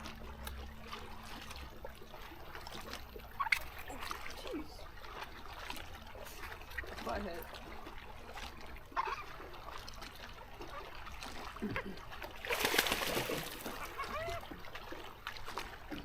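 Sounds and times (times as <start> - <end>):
lapping water: 0.0 - 16.0
loud water splash: 12.4 - 14.0.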